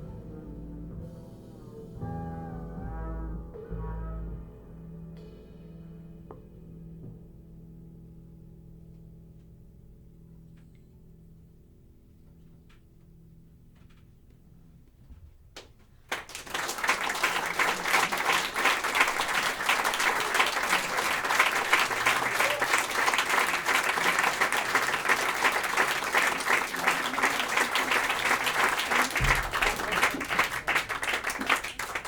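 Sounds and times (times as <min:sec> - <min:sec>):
audience applauding: 0:16.1 - 0:32.0.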